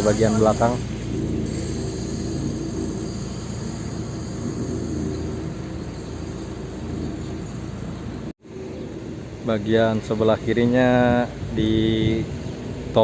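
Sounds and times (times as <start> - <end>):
vehicle engine humming: 0.0 - 9.4.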